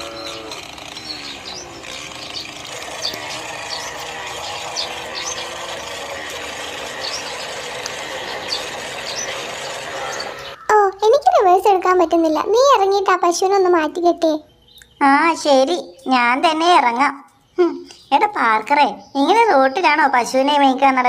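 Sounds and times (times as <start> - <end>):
toy motor whirring: 0.0 - 10.6.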